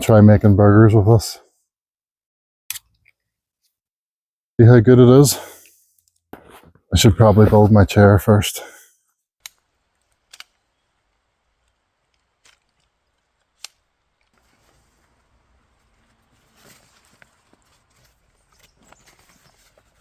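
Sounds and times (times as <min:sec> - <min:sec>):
camp chair clicks: 0:09.4 - 0:15.2
soft rustling: 0:09.8 - 0:20.0.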